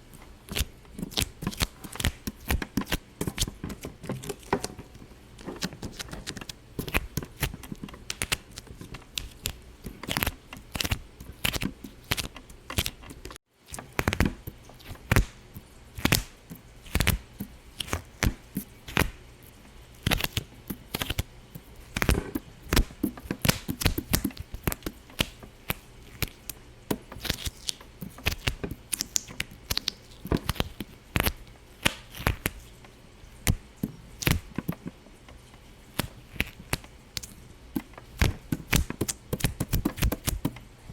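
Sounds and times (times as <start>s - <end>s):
sharp pops and clicks: 21.9s - 32.6s, 33.4s - 35.4s, 36.0s - 40.6s.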